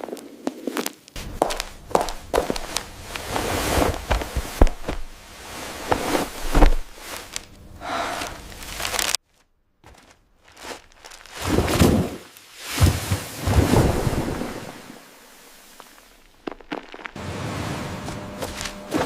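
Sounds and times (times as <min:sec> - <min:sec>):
food crunching and crinkling: 0:00.0 - 0:12.5, 0:15.7 - 0:17.2.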